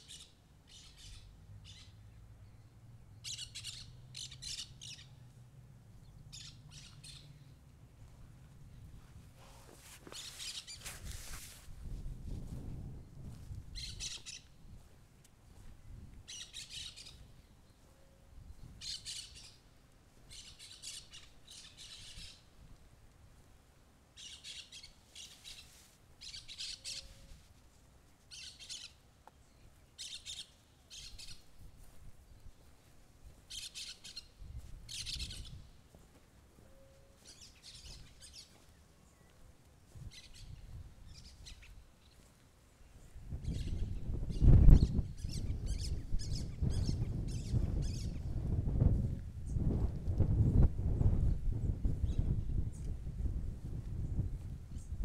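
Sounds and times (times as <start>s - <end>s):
birds chirping: 33.5s - 48.4s.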